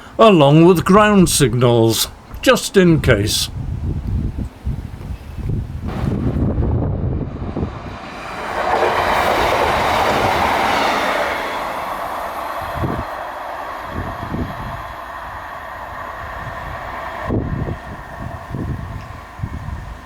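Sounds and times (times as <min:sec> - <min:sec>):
train running on rails: 0:00.0 - 0:20.0
low thumps: 0:04.2 - 0:20.0.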